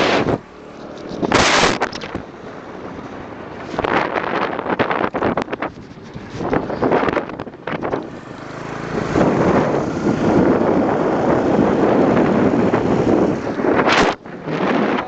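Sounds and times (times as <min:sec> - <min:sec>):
motorcycle engine running: 0:05.9 - 0:13.5.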